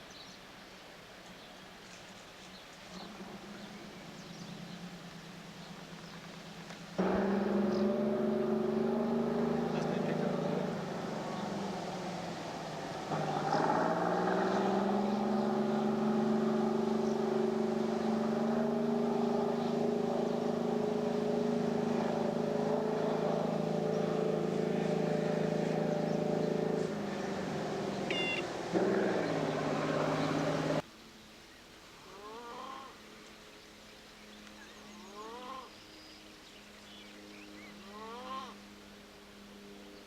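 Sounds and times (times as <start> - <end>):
engine running: 2.9 - 30.8.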